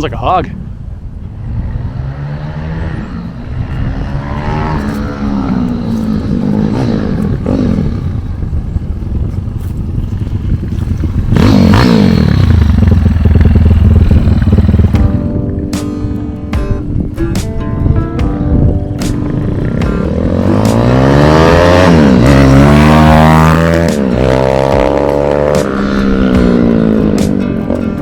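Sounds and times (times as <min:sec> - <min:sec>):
minibike engine revving: 0:01.3 - 0:15.4, 0:19.3 - 0:27.4
music: 0:14.9 - 0:28.0.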